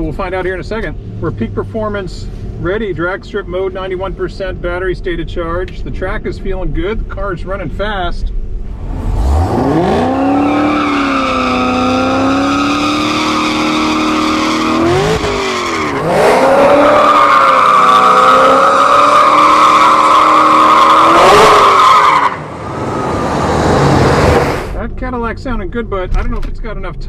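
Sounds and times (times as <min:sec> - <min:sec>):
car engine revving: 0:08.4 - 0:25.0
tyres squealing: 0:10.0 - 0:23.1.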